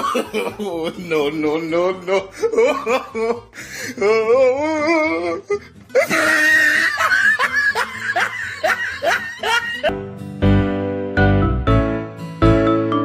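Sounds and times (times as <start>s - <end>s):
person laughing: 0.0s - 10.0s
music: 0.0s - 13.0s.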